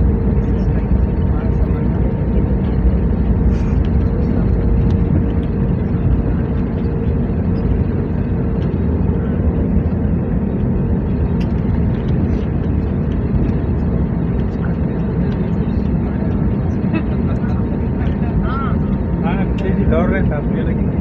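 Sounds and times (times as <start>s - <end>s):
airplane engines rumbling: 0.0s - 21.0s
faint steady whine: 0.0s - 21.0s
rushing air: 3.1s - 14.3s.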